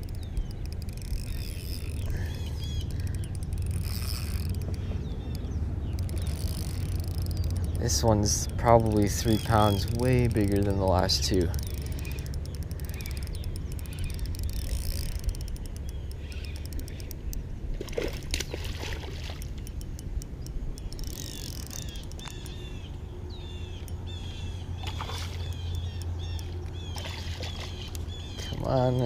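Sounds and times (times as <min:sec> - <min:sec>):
bird chirping: 0:00.0 - 0:17.4, 0:19.6 - 0:29.0
fishing reel clicking fast: 0:00.0 - 0:17.4, 0:19.3 - 0:22.7, 0:25.4 - 0:26.8
water sloshing against boat: 0:00.0 - 0:29.0.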